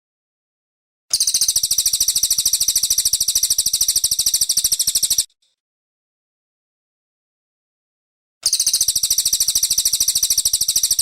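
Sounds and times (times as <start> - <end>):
bird singing rapid trill: 1.1 - 5.4, 8.4 - 11.0.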